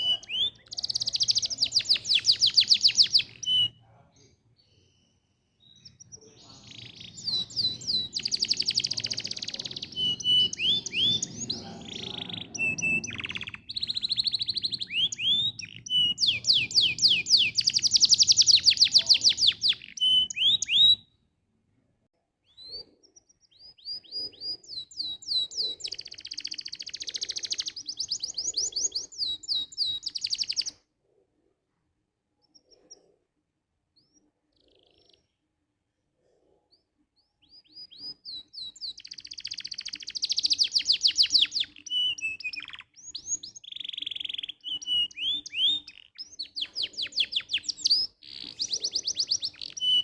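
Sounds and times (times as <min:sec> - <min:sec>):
canary singing trills: 0:00.0 - 0:21.2, 0:22.4 - 0:30.8, 0:34.0 - 0:35.5, 0:36.7 - 0:50.0.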